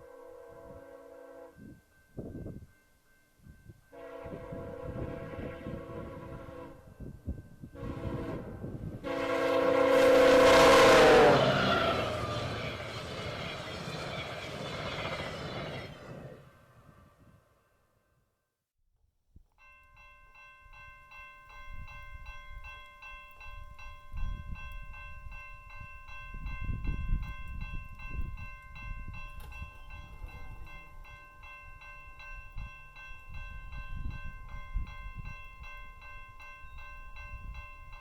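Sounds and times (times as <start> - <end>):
level crossing warning bell ringing: 19.6 - 38.0.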